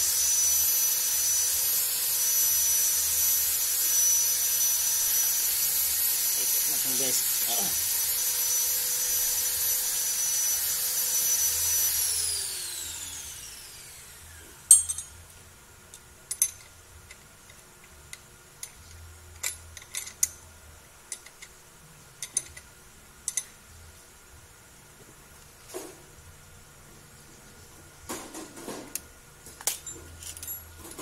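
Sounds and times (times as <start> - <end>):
power tool whining: 0.0 - 14.6
power tool spinning down: 0.0 - 14.7
metallic clinks of hand tools: 14.7 - 15.2.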